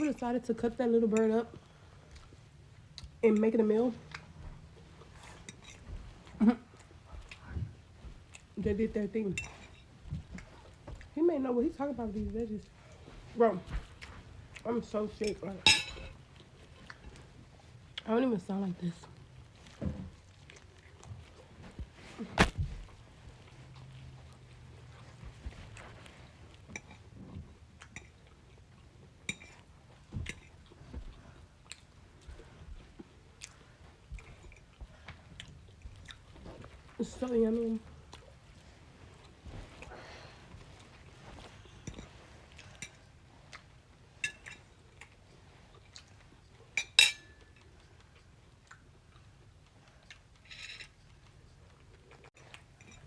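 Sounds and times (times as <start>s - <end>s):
chewing food: 1.0s - 53.0s
tableware clinking: 15.6s - 16.2s, 46.8s - 47.6s.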